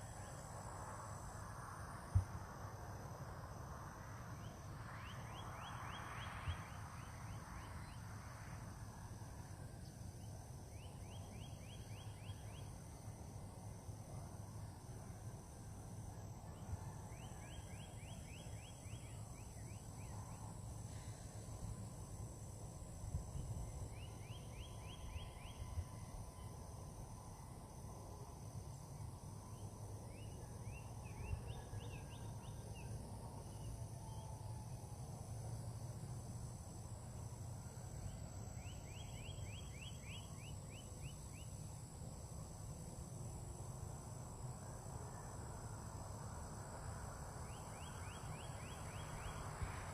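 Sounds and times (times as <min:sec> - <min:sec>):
insects buzzing: 0:00.0 - 0:49.9.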